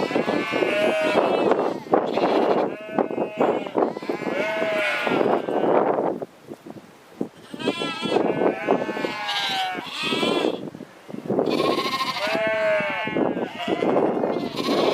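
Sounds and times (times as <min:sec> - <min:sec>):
sheep bleating: 0:00.0 - 0:05.8, 0:07.4 - 0:10.6, 0:11.4 - 0:14.9.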